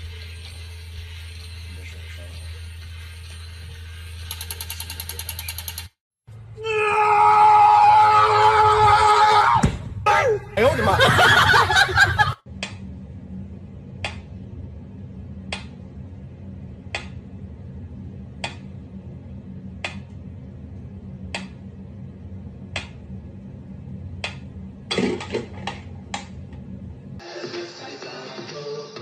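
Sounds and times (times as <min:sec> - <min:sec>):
quick clicks: 0:04.2 - 0:06.0.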